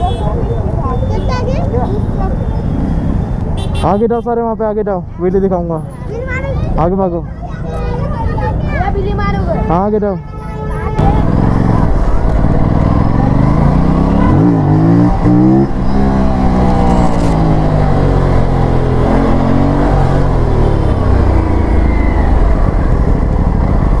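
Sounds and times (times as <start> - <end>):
motorcycle engine revving hard: 11.0 - 24.0.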